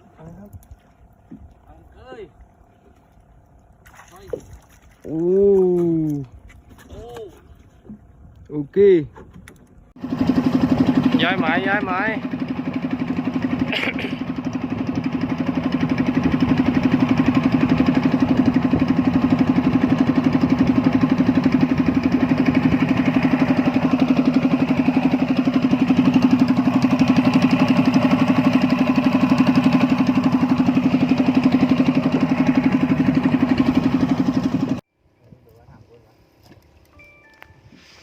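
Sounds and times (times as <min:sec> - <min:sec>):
engine running steadily: 0:09.2 - 0:34.8.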